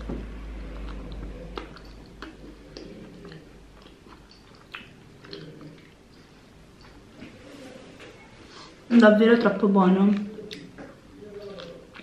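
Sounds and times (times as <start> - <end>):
wet mouth clicks: 0.8 - 6.2.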